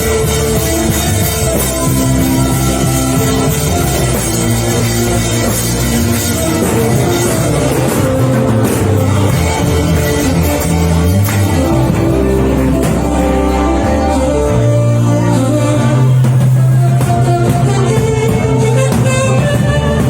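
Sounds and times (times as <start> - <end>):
live band playing instrumental: 0.0 - 20.0.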